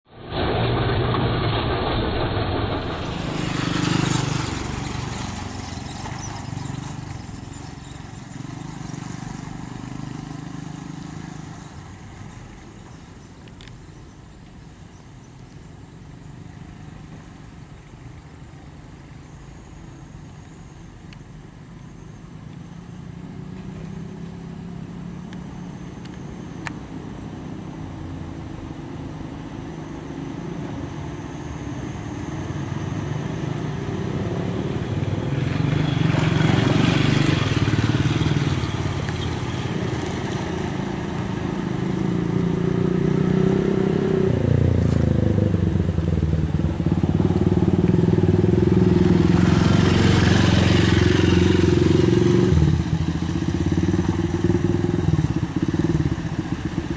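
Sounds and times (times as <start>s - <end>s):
tyre noise rushing past: 0.1s - 13.1s
truck engine drone: 0.1s - 56.9s.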